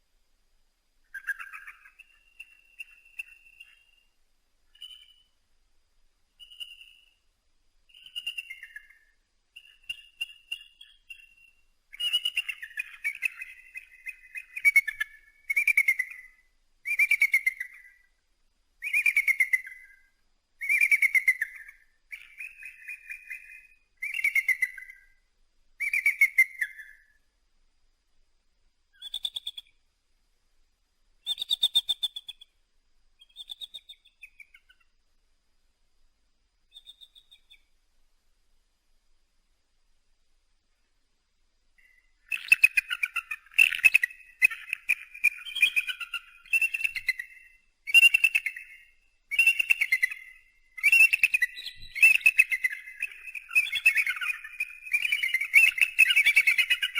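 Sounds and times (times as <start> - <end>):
eagle piping calls: 1.1 - 4.1, 4.7 - 5.3, 7.9 - 18.1, 18.8 - 20.0, 20.6 - 25.1, 25.8 - 27.2, 29.0 - 29.8, 31.2 - 32.5, 33.2 - 34.9, 36.7 - 37.6, 41.8 - 56.9.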